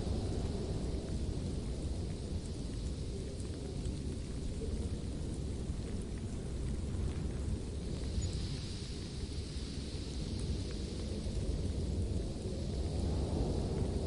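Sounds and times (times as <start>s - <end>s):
faint hiss: 0.0s - 14.0s
faint ticks: 0.0s - 14.0s.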